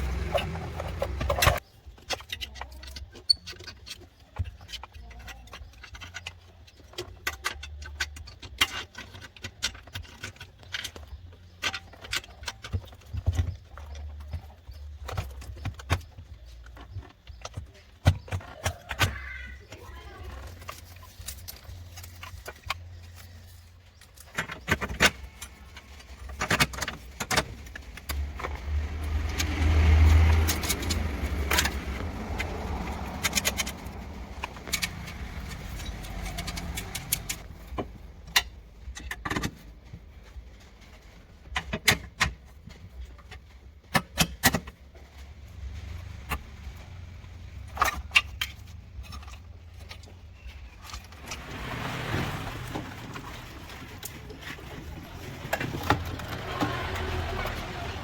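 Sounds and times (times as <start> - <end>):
scraping rustling: 0.0 - 43.9, 44.6 - 58.0
metal tools clinking: 18.2 - 37.4.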